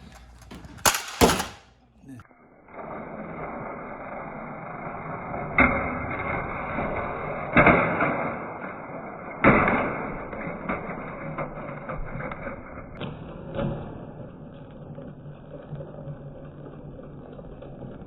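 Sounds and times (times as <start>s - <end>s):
toy truck clacking: 0.1s - 1.7s.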